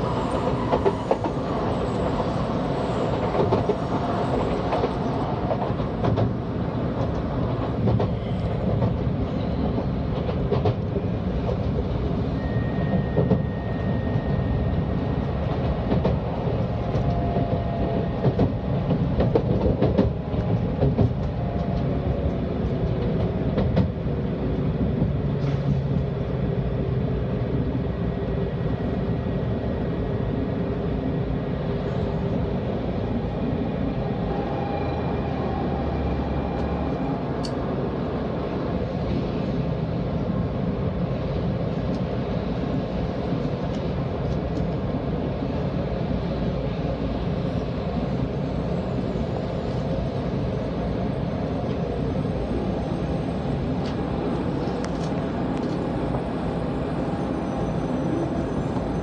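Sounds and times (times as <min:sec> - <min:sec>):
train rumble inside cabin: 0:00.0 - 0:59.0.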